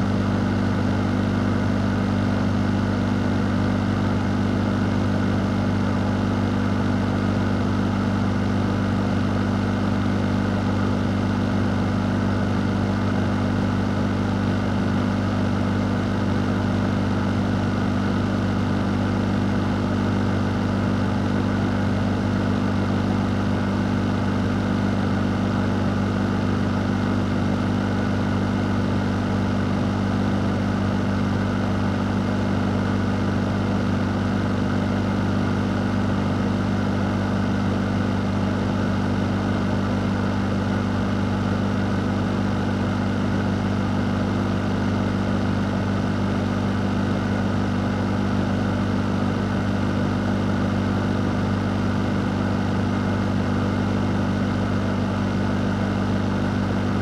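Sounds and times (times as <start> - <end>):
electric fan humming: 18.5 - 57.0.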